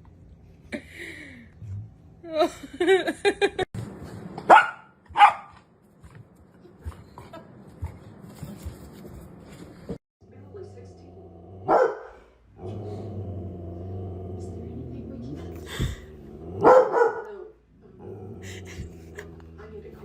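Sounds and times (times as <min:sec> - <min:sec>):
dog barking: 0:04.5 - 0:05.6, 0:11.6 - 0:12.2, 0:16.6 - 0:17.5.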